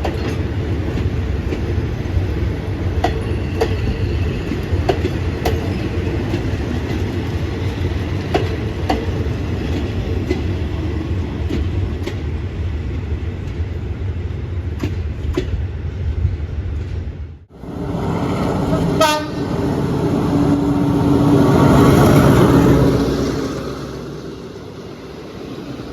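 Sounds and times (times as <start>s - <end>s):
wheels clicking over rail joints: 0.0s - 12.4s
train rumbling on track: 0.0s - 25.9s.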